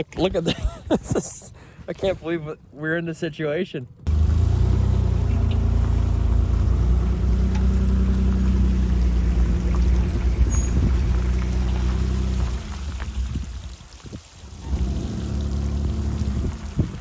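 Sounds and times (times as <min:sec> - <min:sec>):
water and wind rushing: 0:08.6 - 0:17.0.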